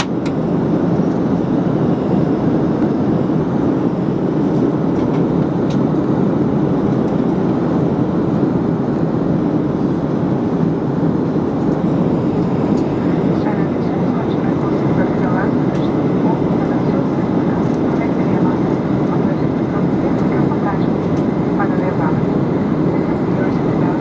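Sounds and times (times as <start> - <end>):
jet engines and rushing air: 0.0 - 24.0.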